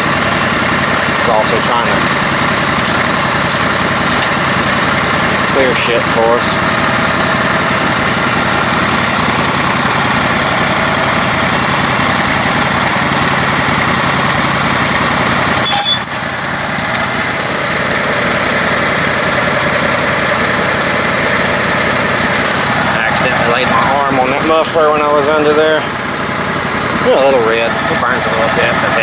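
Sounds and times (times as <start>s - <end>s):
riding lawn mower engine running: 0.0s - 29.0s
brief high squeak: 15.6s - 16.3s.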